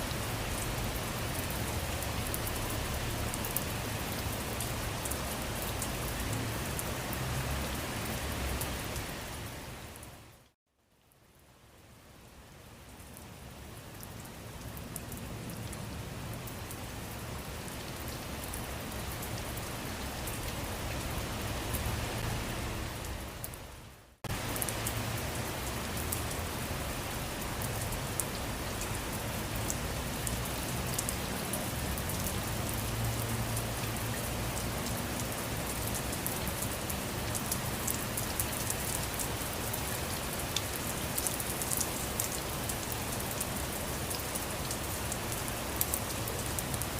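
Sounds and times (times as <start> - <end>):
rain pattering on surfaces: 0.0 - 46.9.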